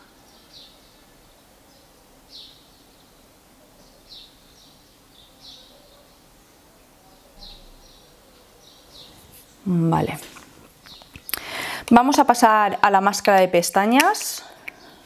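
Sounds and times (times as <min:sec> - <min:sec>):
background hiss: 0:00.0 - 0:15.0
faint bird chirps: 0:07.0 - 0:09.3.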